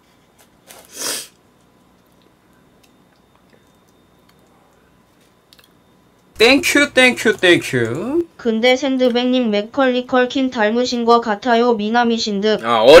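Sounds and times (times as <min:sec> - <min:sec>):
faint chewing: 0:00.2 - 0:06.3
breathy puff: 0:00.7 - 0:01.4.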